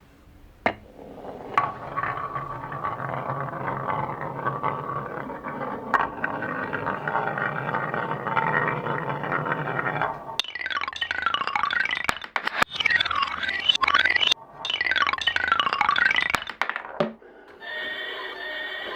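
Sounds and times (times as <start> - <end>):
marbles rolling on track: 0.6 - 17.2
sharp marble clacks: 1.4 - 17.2.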